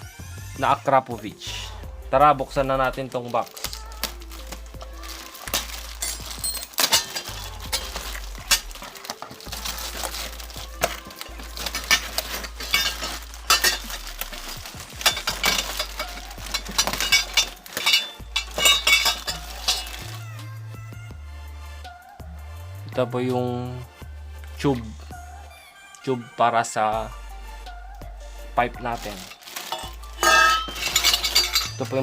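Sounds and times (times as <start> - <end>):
background music with bass line: 0.0 - 32.0
cardboard packaging rustling: 3.0 - 20.4, 28.8 - 32.0
parts knocking and clinking: 5.4 - 20.2, 29.1 - 32.0.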